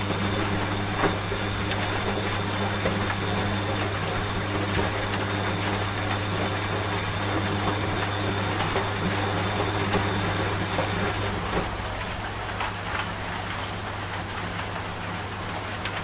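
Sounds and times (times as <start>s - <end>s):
steady rain: 0.0s - 16.0s
washing machine running: 0.0s - 16.0s.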